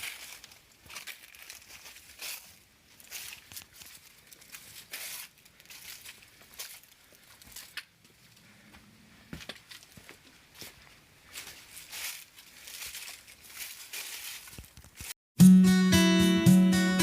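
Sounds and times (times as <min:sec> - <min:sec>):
footsteps crunching dry leaves: 0:00.0 - 0:07.9, 0:09.3 - 0:15.2.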